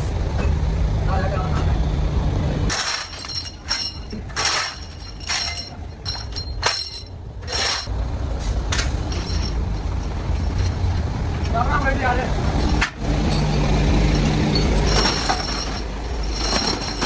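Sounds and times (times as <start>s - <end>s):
low machine rumble: 0.0s - 17.0s
metal parts clinking: 2.7s - 7.9s, 8.7s - 17.0s.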